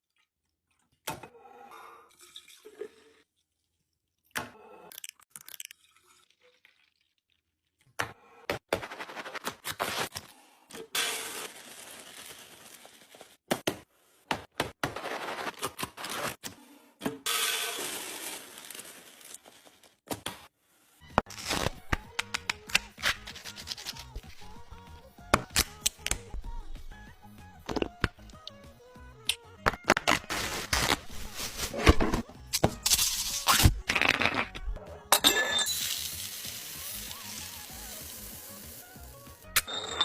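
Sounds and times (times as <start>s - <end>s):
packaging rustling and tearing: 29.9s - 32.2s.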